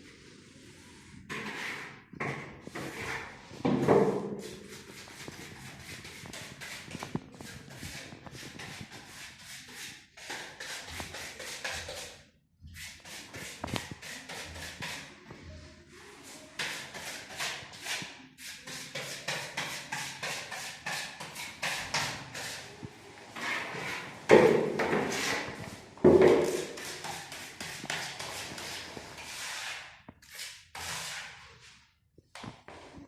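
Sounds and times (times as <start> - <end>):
objects knocking and tapping: 24.3 - 26.8.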